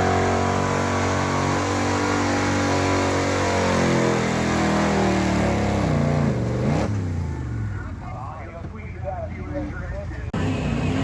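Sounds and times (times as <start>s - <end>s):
tractor engine running at high revs: 0.0s - 7.0s.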